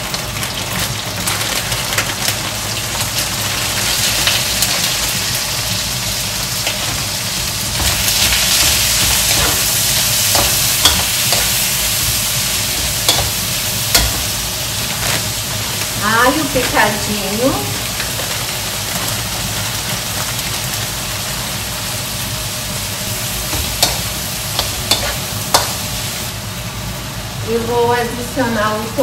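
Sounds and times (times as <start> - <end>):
meat sizzling in oil: 0.0 - 27.6
metal spoon scraping a pan: 7.8 - 15.9, 23.5 - 25.9.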